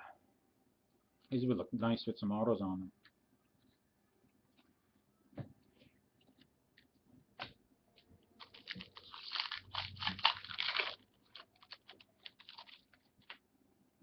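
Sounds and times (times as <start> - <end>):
card packaging crinkling: 8.4 - 13.4
cards clicking and rustling: 8.4 - 13.4.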